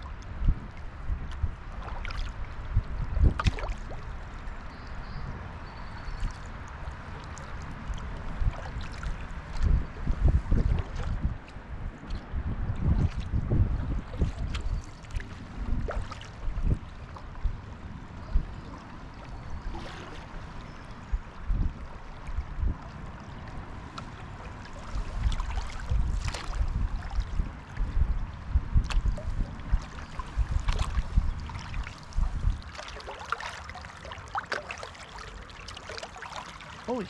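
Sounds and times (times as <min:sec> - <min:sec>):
wind on microphone: 0:00.0 - 0:32.9
paddle splashes: 0:01.3 - 0:04.5, 0:06.1 - 0:28.0, 0:28.8 - 0:37.0
water gurgling: 0:29.4 - 0:37.0.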